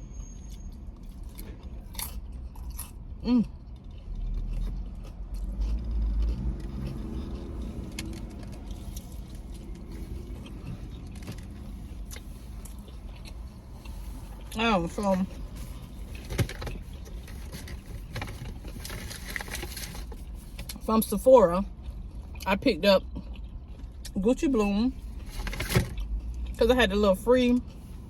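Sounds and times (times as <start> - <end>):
crunchy chewing of fried food: 0.0 - 28.0.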